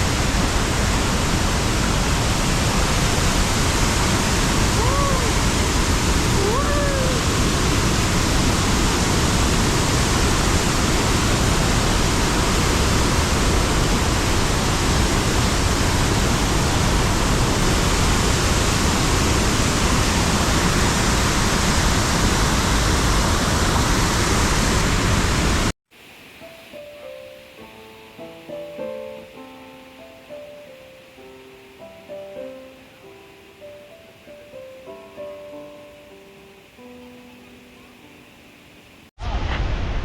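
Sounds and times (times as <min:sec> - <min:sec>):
waterfall crashing: 0:00.0 - 0:28.5.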